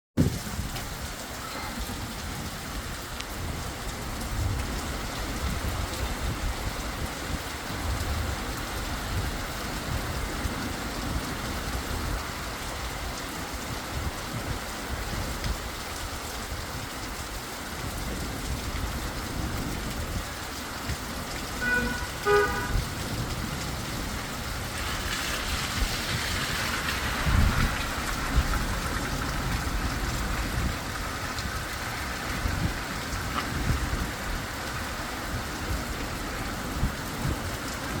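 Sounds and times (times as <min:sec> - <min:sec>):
heavy rain pouring: 0:00.2 - 0:38.0
short horn beeps: 0:21.6 - 0:22.8.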